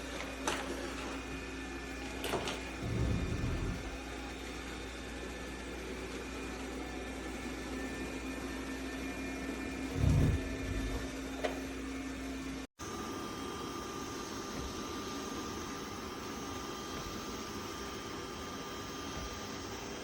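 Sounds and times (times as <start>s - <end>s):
robot vacuum motor hum: 2.8s - 4.3s, 9.8s - 11.5s.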